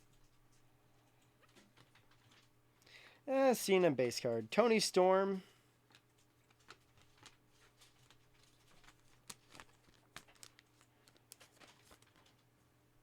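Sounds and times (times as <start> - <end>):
trading cards clicking and rustling: 5.8 - 12.5.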